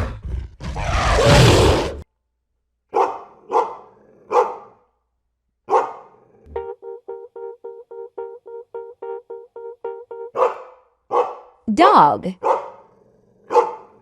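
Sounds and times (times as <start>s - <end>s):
dog barking: 2.9s - 4.8s, 5.7s - 6.4s, 10.3s - 11.6s, 12.4s - 14.0s
plucked music notes: 6.5s - 10.3s.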